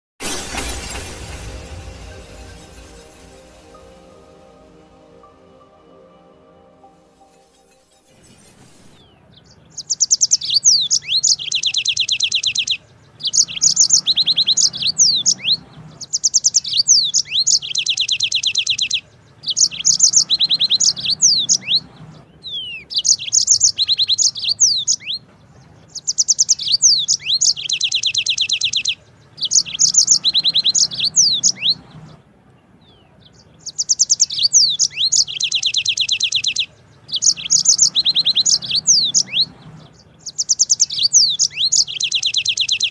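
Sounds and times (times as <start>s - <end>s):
canary singing trills: 8.9s - 32.2s, 32.8s - 42.9s.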